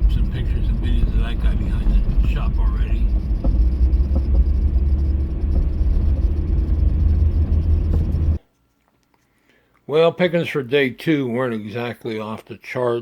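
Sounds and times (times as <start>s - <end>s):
train rumbling past: 0.0s - 8.4s.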